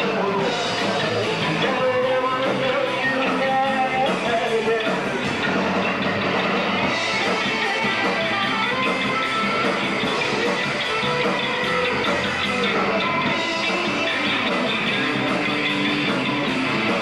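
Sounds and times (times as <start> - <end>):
drum kit: 0.0 - 17.0
guitar: 0.0 - 17.0.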